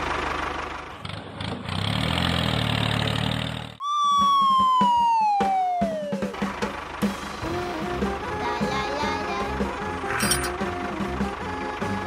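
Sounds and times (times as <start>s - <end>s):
whistle-like tone sliding down: 3.8s - 6.3s.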